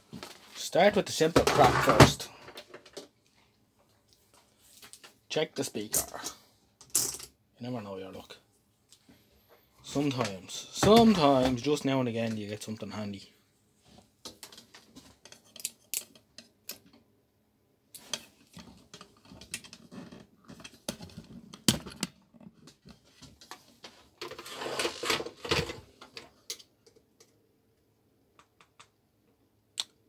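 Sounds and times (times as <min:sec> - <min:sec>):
small parts clicking and rattling: 0:14.3 - 0:17.0.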